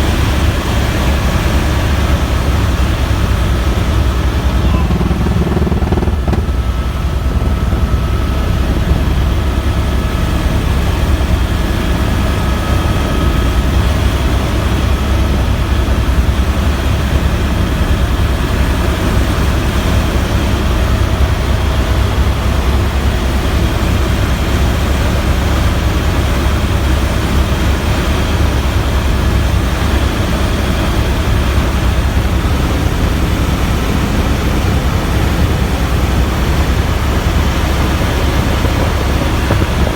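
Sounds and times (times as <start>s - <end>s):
helicopter rotor and engine drone: 0.0s - 39.9s
faint whine tones: 1.6s - 17.3s.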